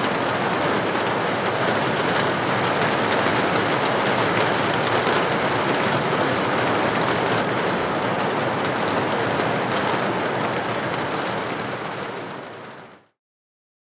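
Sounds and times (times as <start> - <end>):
heavy rain on hard surface: 0.0 - 13.1.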